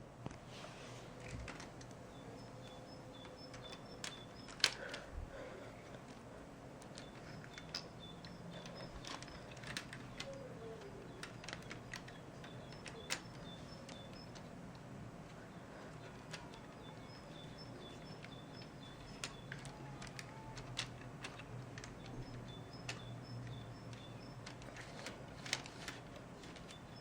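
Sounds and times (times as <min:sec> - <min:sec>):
low steady hum: 0:00.0 - 0:27.0
sharp clicks: 0:06.8 - 0:27.0
faint high chirps: 0:15.4 - 0:20.6.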